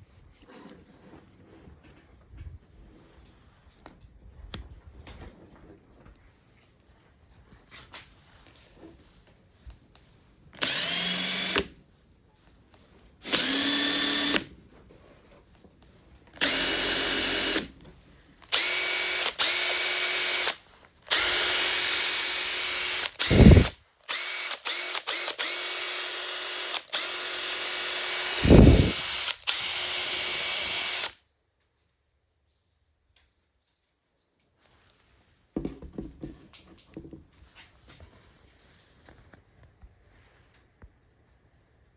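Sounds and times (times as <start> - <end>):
impact driver motor whine: 10.6 - 11.7, 13.2 - 14.5, 16.4 - 17.7, 18.5 - 31.2.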